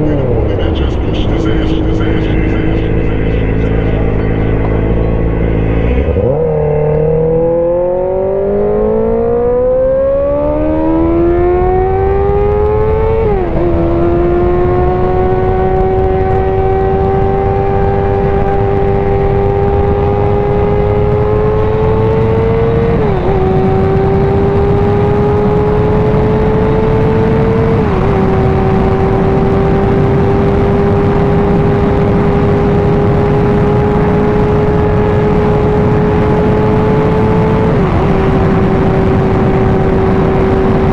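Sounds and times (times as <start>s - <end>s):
motorcycle engine accelerating: 0.0s - 40.9s
wind rush on microphone: 10.2s - 40.9s.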